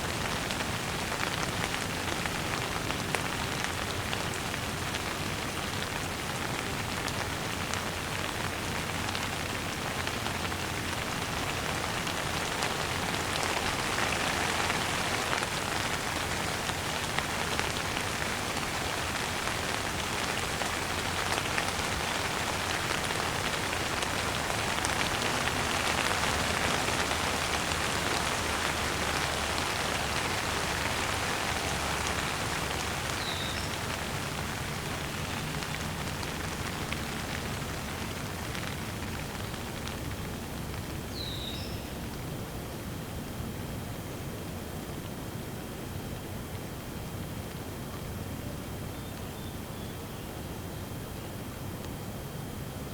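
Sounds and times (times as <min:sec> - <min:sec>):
rain shower patter: 0:00.0 - 0:42.2.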